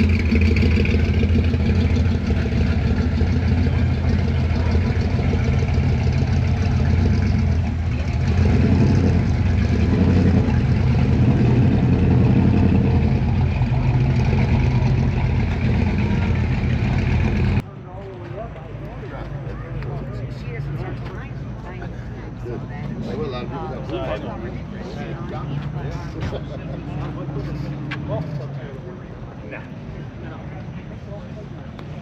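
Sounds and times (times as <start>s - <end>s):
car engine idling: 0.0s - 17.6s.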